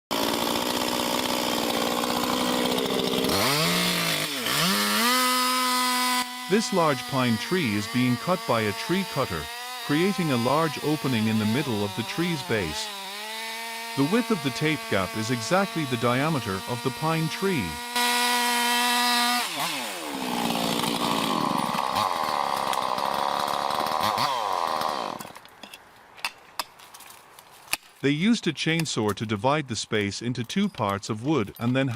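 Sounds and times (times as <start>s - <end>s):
chainsaw engine revving: 0.1s - 25.3s.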